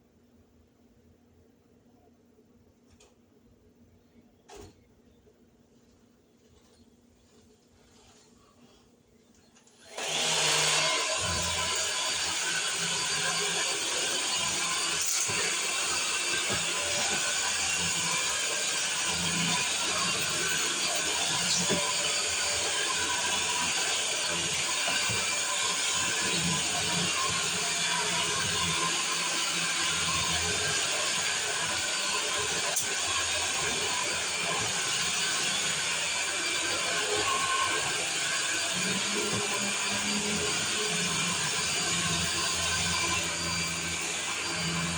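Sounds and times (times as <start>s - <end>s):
vacuum cleaner running: 9.8s - 44.9s.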